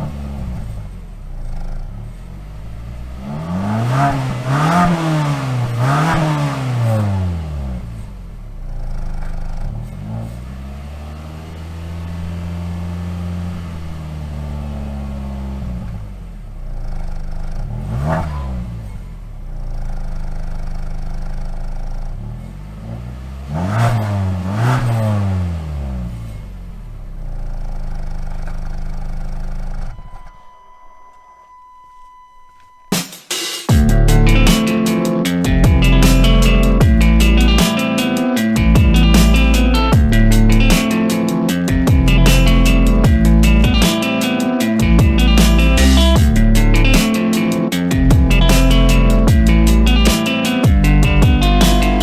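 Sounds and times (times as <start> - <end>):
car engine revving and idling: 0.0 - 29.9.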